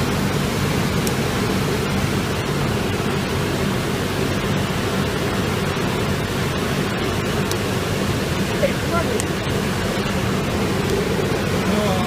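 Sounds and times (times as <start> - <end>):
air blower running: 0.0 - 12.0.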